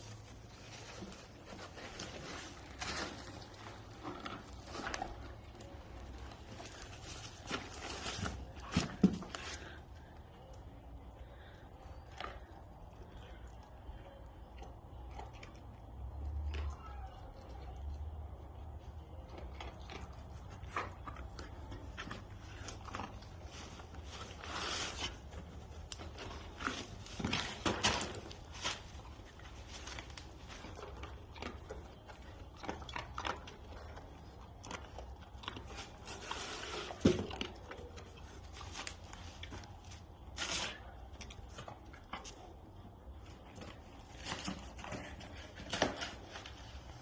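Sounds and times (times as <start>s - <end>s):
dog sniffing and snuffling: 19.7s - 42.4s.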